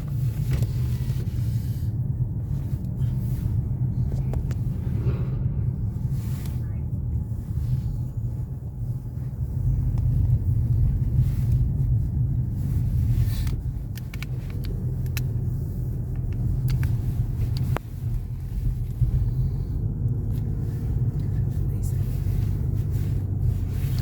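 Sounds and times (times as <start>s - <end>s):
vehicle engine rumble: 0.0s - 24.0s.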